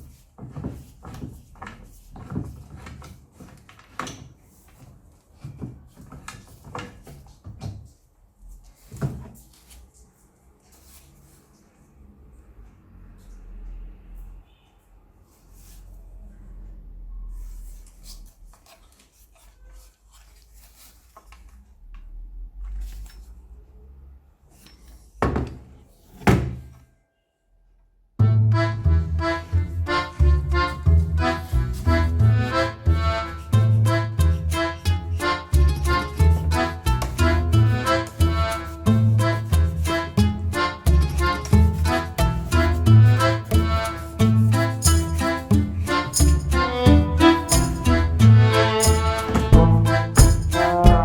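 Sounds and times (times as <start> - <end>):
wooden knocks and clunks: 25.2 - 26.7, 49.1 - 51.0
loud thunks: 26.2 - 26.7, 49.2 - 51.0
knocks and clicks of objects: 44.8 - 51.0.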